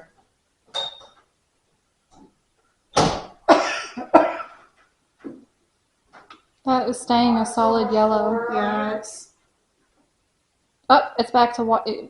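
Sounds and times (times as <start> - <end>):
person coughing: 3.5 - 4.6.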